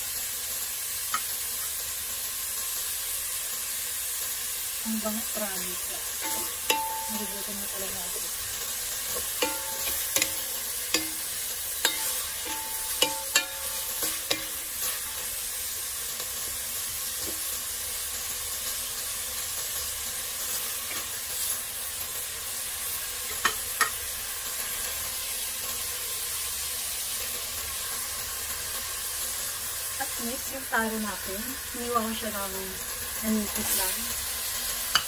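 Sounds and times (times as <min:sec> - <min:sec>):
food sizzling in oil: 0:00.0 - 0:35.0
metal utensil clinking pot: 0:06.2 - 0:07.5, 0:09.1 - 0:15.2.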